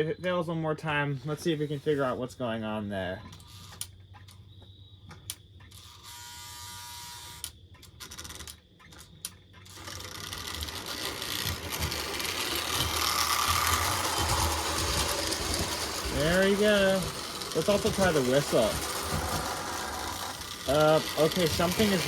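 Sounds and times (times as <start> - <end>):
toy train motor whirring on track: 3.4 - 3.9, 5.7 - 22.0
toy cars clicking: 5.6 - 22.0.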